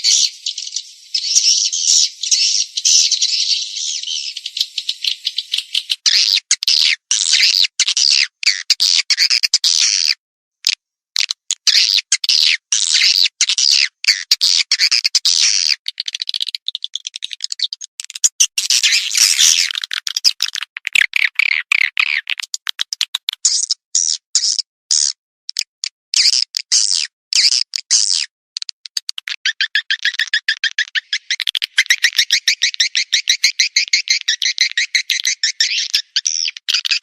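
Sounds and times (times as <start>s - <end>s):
swiftlet clicking and chirping: 0.0s - 7.8s, 15.9s - 37.0s.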